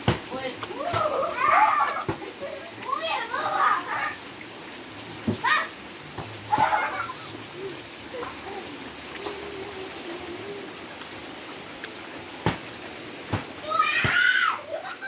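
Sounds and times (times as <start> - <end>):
rain pattering on surfaces: 0.0 - 15.0
child shouting: 0.7 - 2.2, 2.8 - 4.2, 5.4 - 5.8, 6.5 - 7.7, 13.6 - 15.0.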